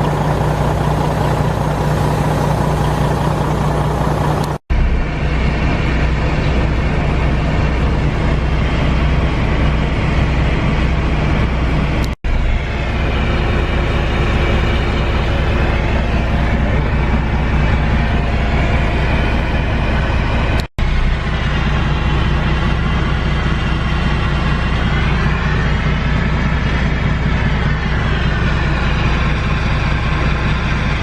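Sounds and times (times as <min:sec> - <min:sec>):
combine harvester engine drone: 0:00.0 - 0:31.0.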